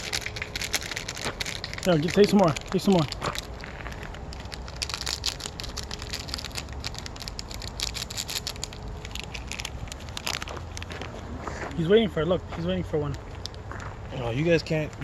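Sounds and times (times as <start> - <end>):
crackling and rustling clicks: 0.0 - 11.2, 13.0 - 13.9.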